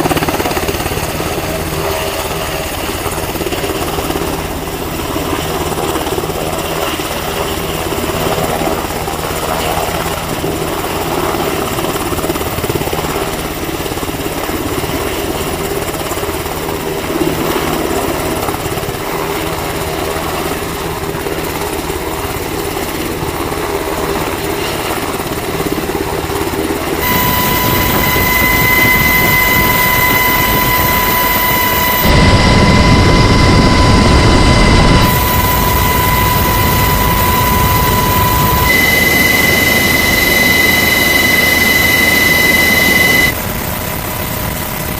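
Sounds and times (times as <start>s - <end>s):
helicopter rotor and turbine drone: 0.0s - 44.9s
high-pitched whine: 27.0s - 43.4s.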